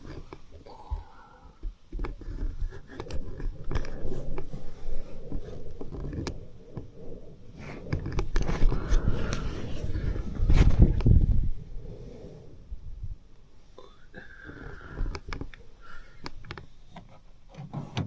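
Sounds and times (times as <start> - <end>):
close rustling and handling: 0.0 - 11.6.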